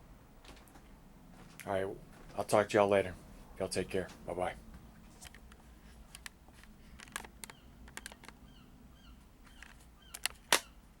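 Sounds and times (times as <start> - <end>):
sharp clicks and knocks: 4.7 - 8.4, 9.5 - 10.7.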